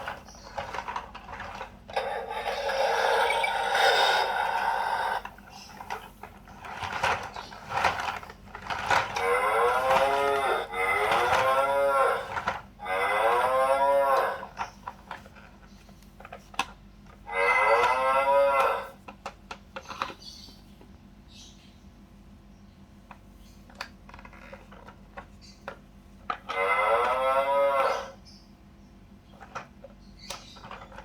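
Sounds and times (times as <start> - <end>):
electronic cow moos from toy: 2.4 - 5.3, 9.1 - 14.6, 17.2 - 19.0, 26.4 - 28.2.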